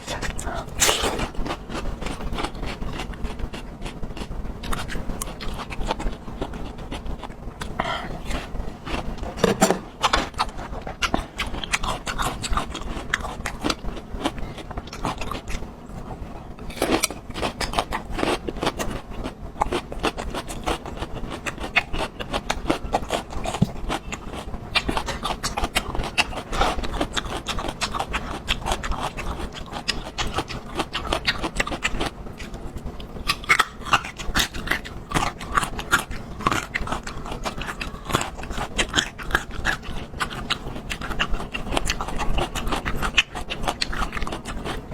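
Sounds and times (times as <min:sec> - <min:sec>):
wet chewing: 0:00.0 - 0:44.9.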